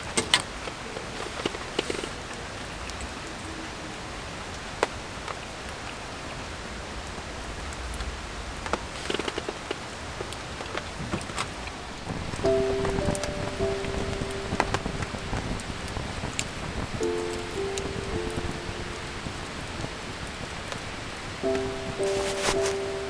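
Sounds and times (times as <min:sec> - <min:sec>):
steady rain falling: 0:00.0 - 0:23.0
music with held tones: 0:12.2 - 0:23.0.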